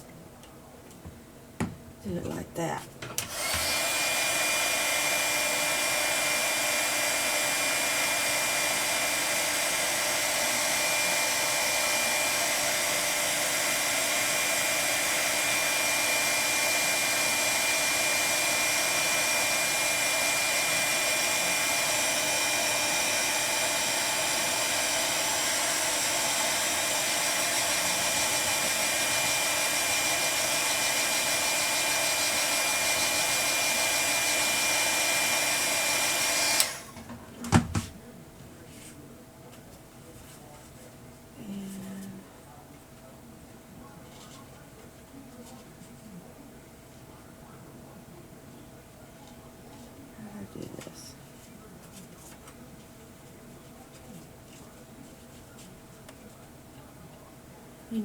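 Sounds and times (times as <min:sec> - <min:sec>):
hot-air blower rushing: 0:03.2 - 0:37.7.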